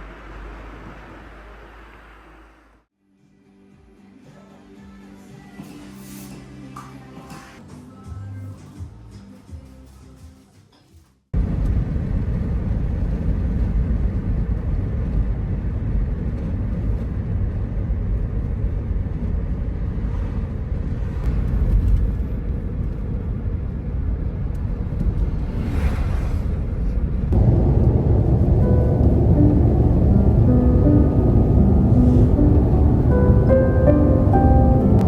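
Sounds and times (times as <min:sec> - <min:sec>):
car road rumble from inside: 0:11.4 - 0:35.0
vehicle passing rush: 0:25.2 - 0:35.0.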